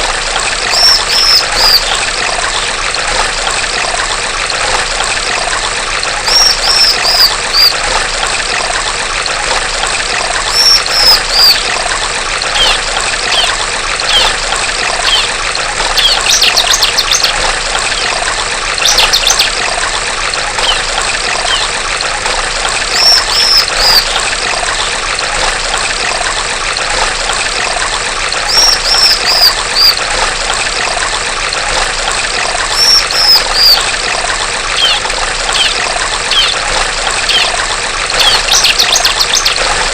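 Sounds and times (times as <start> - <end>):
stream water trickling: 0.0 - 39.9
bird calling falling chirps: 0.7 - 2.0, 10.5 - 11.6, 12.6 - 14.3, 15.0 - 15.3, 23.0 - 24.2, 32.7 - 33.8, 34.8 - 36.6, 37.3 - 37.6
bird trills: 0.7 - 2.0, 6.2 - 7.8, 10.5 - 11.7, 12.6 - 14.3, 15.0 - 15.4, 16.0 - 18.1, 18.8 - 19.5, 20.6 - 21.7, 22.9 - 24.2, 28.5 - 30.0, 32.7 - 33.9, 34.8 - 37.6, 38.2 - 39.7.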